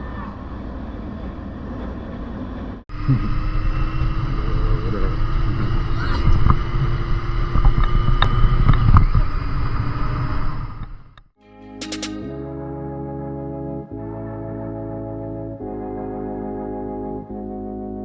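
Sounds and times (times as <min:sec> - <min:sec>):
motorcycle engine running: 0:02.9 - 0:11.2
wind on microphone: 0:03.0 - 0:11.1.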